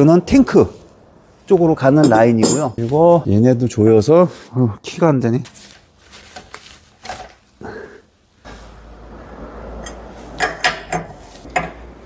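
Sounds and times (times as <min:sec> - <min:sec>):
metal parts clanking: 0:02.0 - 0:02.9.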